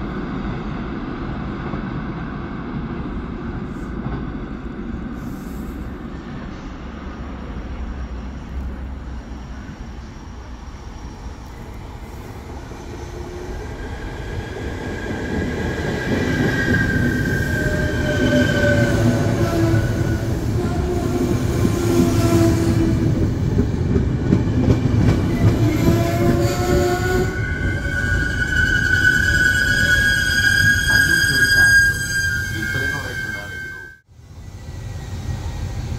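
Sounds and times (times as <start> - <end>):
train rumbling: 0.0 - 35.9
high squealing tones: 26.5 - 34.0.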